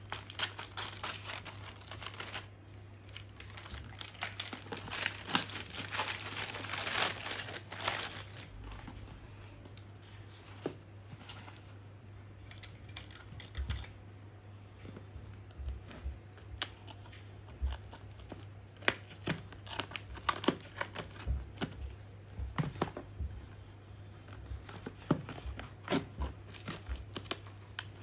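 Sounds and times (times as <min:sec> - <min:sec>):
packaging crinkling and tearing: 0:00.0 - 0:09.0, 0:16.5 - 0:21.9, 0:24.3 - 0:28.0.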